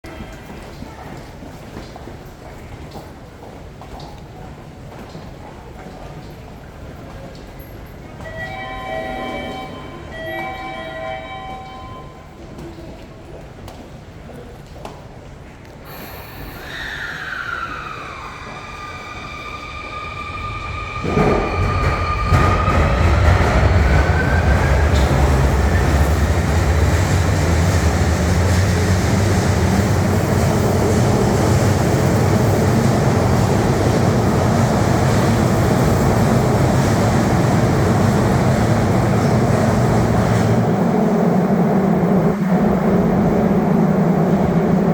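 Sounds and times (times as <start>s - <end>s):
train wheels rumbling: 15.9s - 44.9s.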